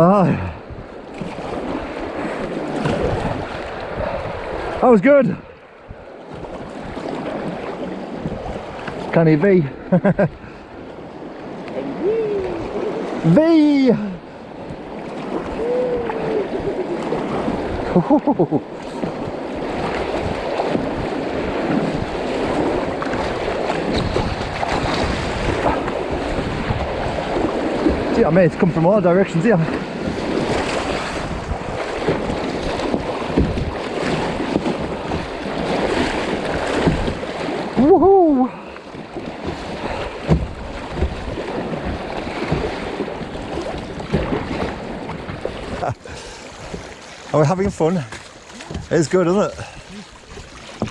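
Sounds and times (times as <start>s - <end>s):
paddle splashes: 0.0s - 50.9s
wind buffeting microphone: 0.3s - 9.1s, 19.0s - 50.9s
river water rushing: 10.6s - 50.9s
person calling out: 11.9s - 13.0s, 15.6s - 16.6s, 37.8s - 38.6s
person whooping shout: 12.0s - 12.9s, 15.6s - 16.5s, 37.8s - 38.5s.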